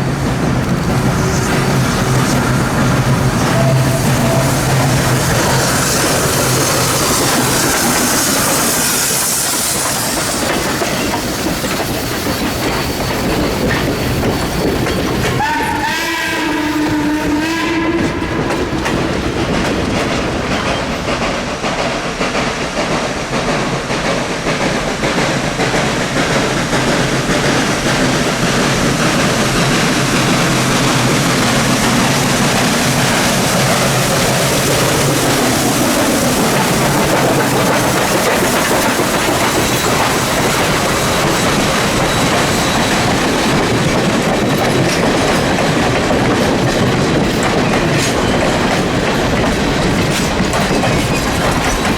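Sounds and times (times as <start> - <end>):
train running noise: 0.0 - 51.9
steam whistle: 1.2 - 9.6, 15.4 - 18.4.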